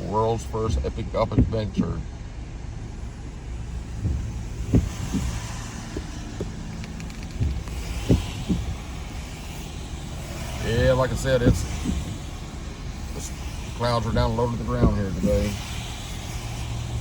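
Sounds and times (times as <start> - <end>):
car engine and tyre rumble: 0.0 - 17.0
short knocks: 4.0 - 8.9, 14.8 - 15.5.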